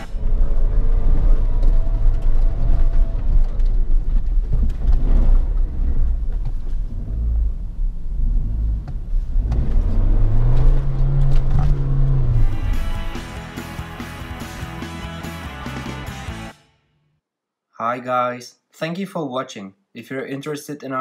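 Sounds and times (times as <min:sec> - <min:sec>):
car engine rumbling at low revs: 0:00.0 - 0:13.2.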